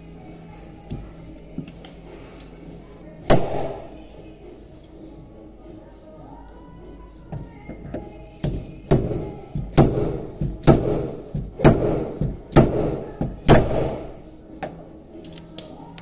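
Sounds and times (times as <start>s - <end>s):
hammer blows on car body panel: 8.4s - 14.0s.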